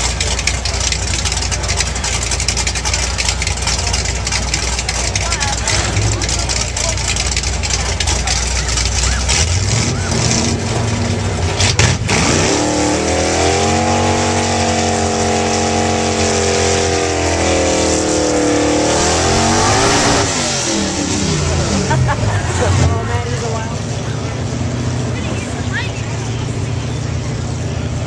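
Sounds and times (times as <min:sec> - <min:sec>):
tyres spinning: 0:00.0 - 0:11.9
car engine revving: 0:00.0 - 0:28.0.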